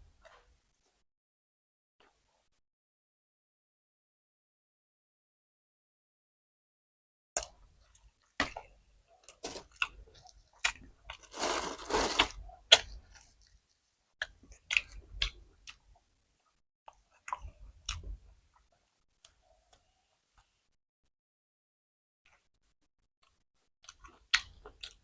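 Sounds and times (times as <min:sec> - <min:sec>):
chewing and crunching: 0:07.4 - 0:16.0, 0:16.9 - 0:19.4, 0:23.2 - 0:25.0.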